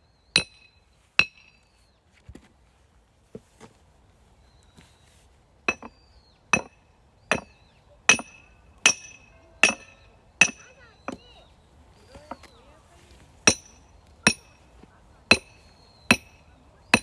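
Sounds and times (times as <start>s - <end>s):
hammer blows on metal: 5.7s - 5.9s, 6.6s - 11.3s, 13.5s - 14.7s, 15.3s - 17.0s.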